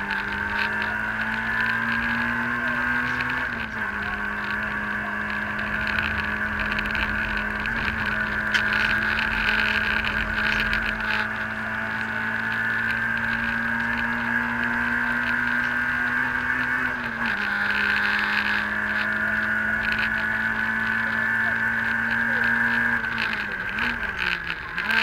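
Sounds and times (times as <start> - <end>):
car engine revving high: 0.0 - 25.0.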